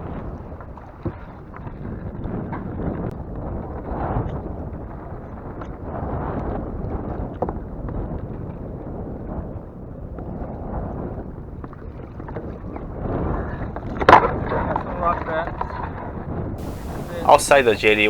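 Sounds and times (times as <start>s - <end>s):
choppy water: 0.0s - 18.0s
wind buffeting microphone: 16.6s - 18.0s.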